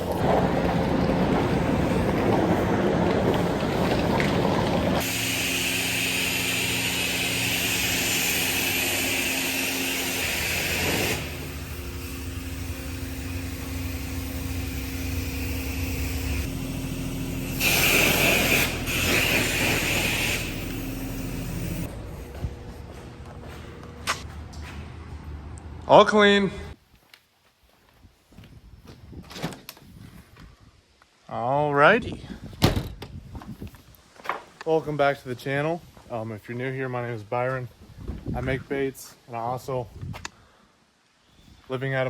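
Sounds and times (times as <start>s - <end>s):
motor hum: 0.0s - 25.9s
high-pressure water spray hissing: 5.0s - 21.9s.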